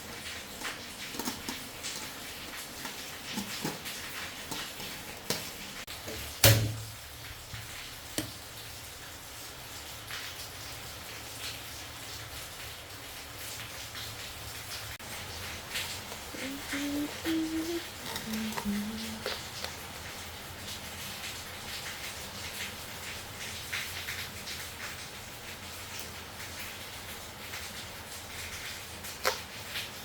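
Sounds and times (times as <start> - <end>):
utensils and dishes clicking: 0.2 - 6.6, 15.9 - 19.7.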